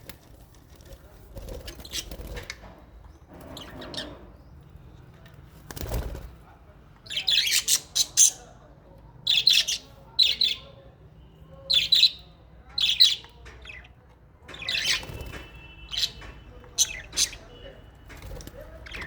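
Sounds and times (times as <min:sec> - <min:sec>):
parrots chirping: 0:07.0 - 0:08.5, 0:09.2 - 0:10.8, 0:11.7 - 0:17.8, 0:18.7 - 0:19.0.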